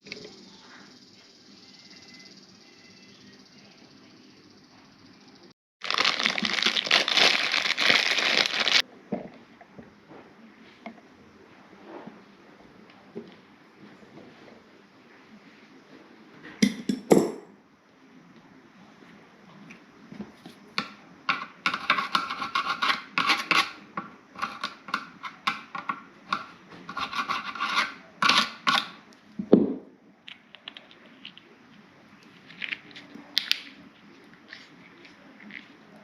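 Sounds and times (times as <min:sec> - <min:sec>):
hand scraping toilet parts: 0:20.8 - 0:29.0.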